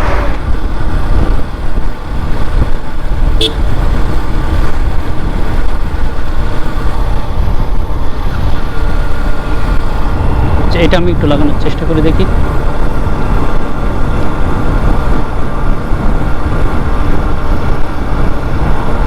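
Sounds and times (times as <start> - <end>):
motorcycle engine running: 0.0 - 19.0
wind buffeting microphone: 0.0 - 19.0
horn toot: 3.4 - 3.7.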